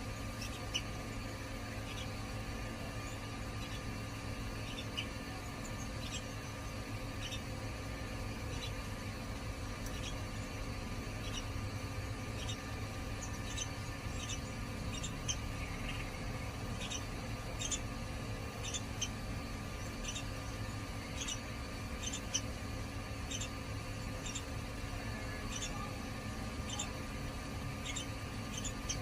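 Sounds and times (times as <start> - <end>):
steady low hum: 0.0 - 29.0
bird squeaky chirps: 12.3 - 16.2, 16.8 - 17.9, 27.8 - 29.0.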